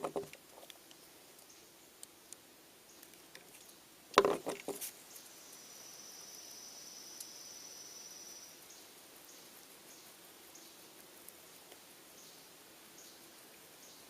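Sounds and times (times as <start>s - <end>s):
faint high whine: 4.7s - 14.0s.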